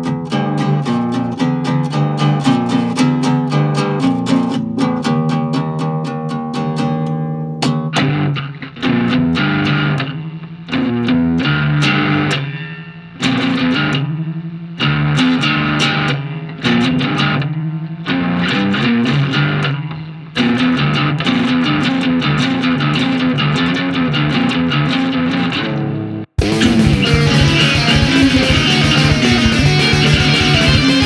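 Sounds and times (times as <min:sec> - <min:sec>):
electric guitar riff: 0:20.4 - 0:31.0
bass guitar: 0:26.4 - 0:31.0.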